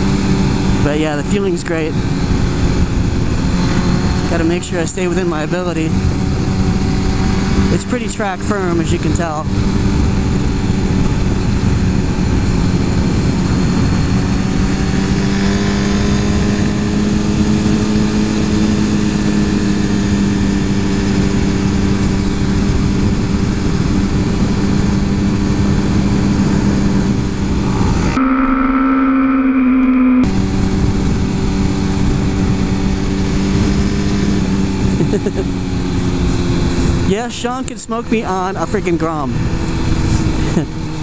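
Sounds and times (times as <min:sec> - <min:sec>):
motorcycle engine running: 0:00.0 - 0:41.0
rushing air noise: 0:24.0 - 0:35.0.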